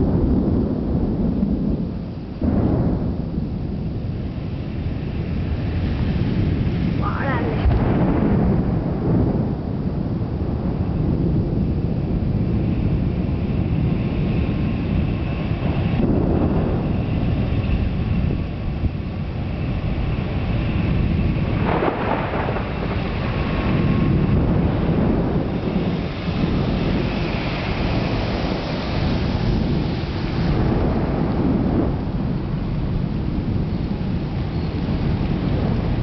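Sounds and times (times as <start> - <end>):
rain: 0.0 - 36.0
thunder rumbling: 0.0 - 36.0.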